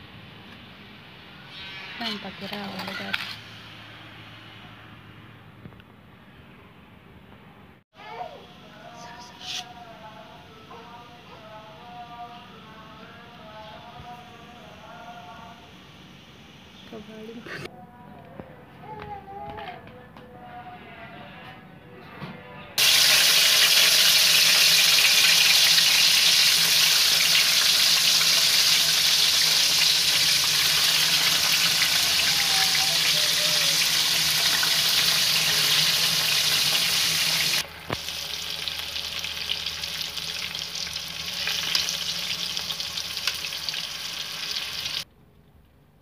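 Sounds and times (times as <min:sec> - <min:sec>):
oil crackling: 0:22.8 - 0:45.0
vegetables sizzling in hot oil: 0:22.8 - 0:45.0.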